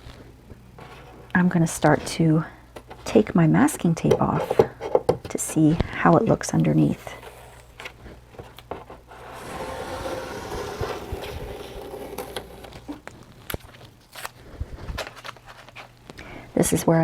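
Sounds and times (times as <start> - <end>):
tape peeling off paper: 9.1 - 14.4.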